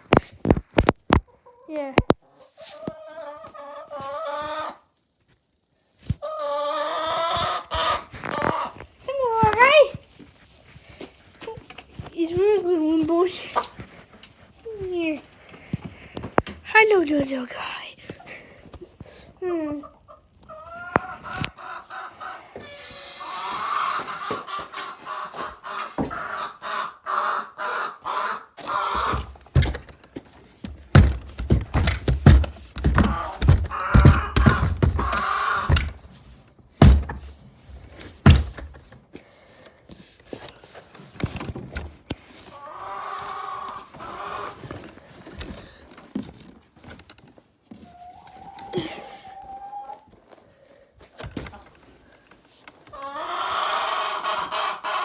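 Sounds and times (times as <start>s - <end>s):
chicken calling: 20.5s - 29.7s, 30.9s - 36.2s, 47.9s - 50.1s, 52.9s - 55.0s
rustling: 28.6s - 42.6s
dull thumps: 28.9s - 39.0s.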